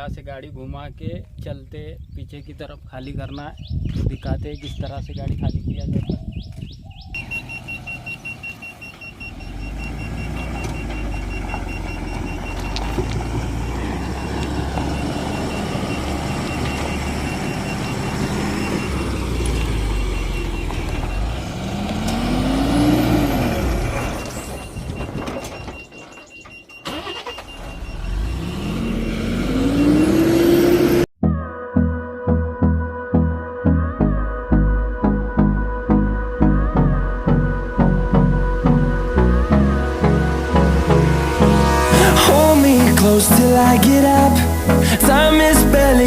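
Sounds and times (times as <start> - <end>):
reversing beeps: 7.1 - 21.4, 23.6 - 30.0
truck diesel engine revving: 7.2 - 25.2, 26.9 - 31.1, 36.4 - 46.0.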